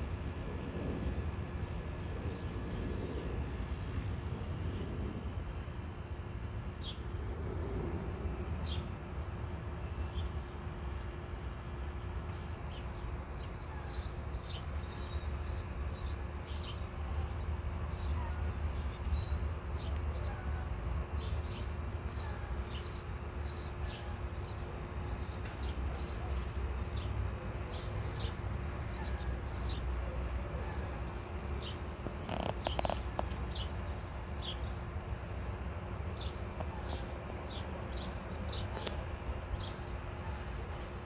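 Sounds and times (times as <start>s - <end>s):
low rumble: 0.0s - 9.1s
faint steady hum: 0.0s - 41.0s
small birds chirping: 12.2s - 35.0s, 35.9s - 40.8s.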